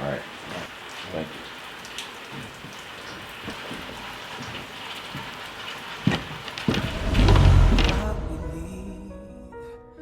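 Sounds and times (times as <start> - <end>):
steady rain falling: 0.0 - 8.3
deep low rumble: 6.8 - 9.5.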